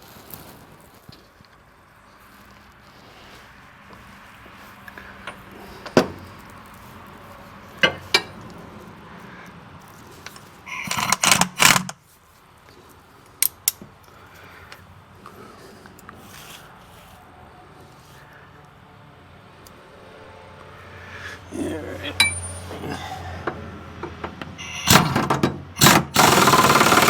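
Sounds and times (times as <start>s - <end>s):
metal tools clinking: 7.8s - 8.5s, 22.0s - 22.8s.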